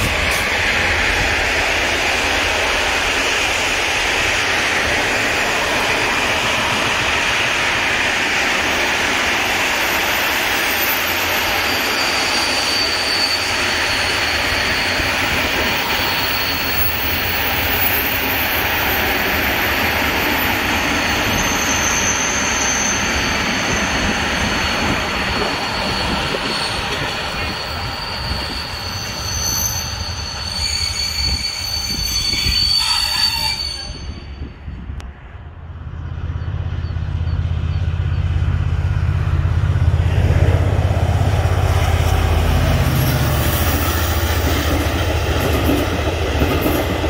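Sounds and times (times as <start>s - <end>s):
train wheels on rails: 0.0s - 47.0s
faint high-pitched squealing: 9.8s - 19.6s, 20.3s - 34.6s.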